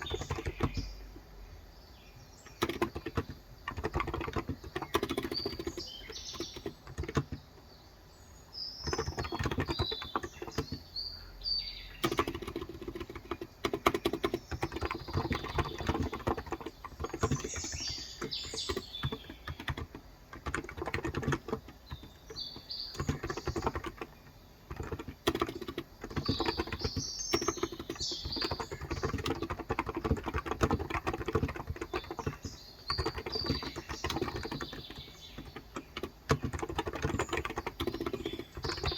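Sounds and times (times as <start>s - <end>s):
keyboard typing: 0.0s - 1.2s, 2.4s - 7.6s, 8.8s - 10.9s, 12.0s - 38.9s
birds chirping: 0.0s - 38.9s.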